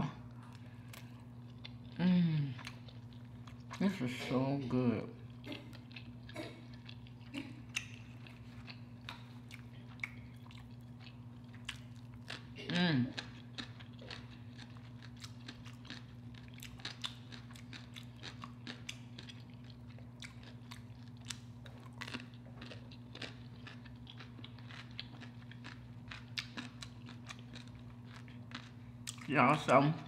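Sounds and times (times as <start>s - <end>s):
person chewing and crunching: 0.2s - 30.0s.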